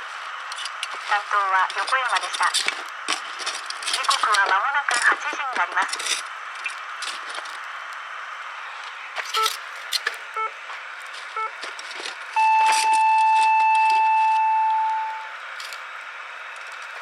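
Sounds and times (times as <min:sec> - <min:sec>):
radio hiss: 0:01.0 - 0:02.6
radio time signal beeps: 0:10.4 - 0:10.6, 0:11.4 - 0:11.6, 0:12.4 - 0:15.4.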